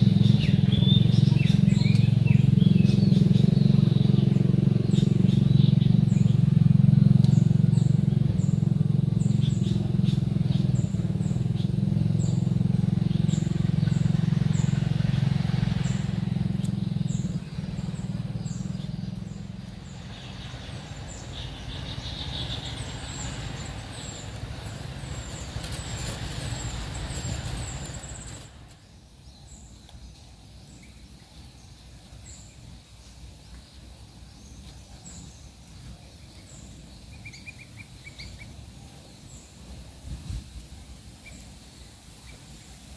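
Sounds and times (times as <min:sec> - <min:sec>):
lower bird calls: 0:00.0 - 0:39.9
small birds chirping: 0:00.0 - 0:42.9
traffic engine hum: 0:00.0 - 0:42.9.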